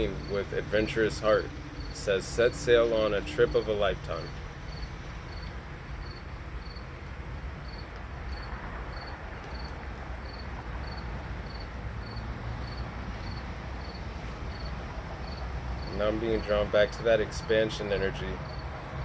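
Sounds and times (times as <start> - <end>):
cricket chirping: 0.0 - 2.2, 4.2 - 6.9, 7.6 - 16.1, 18.5 - 18.8.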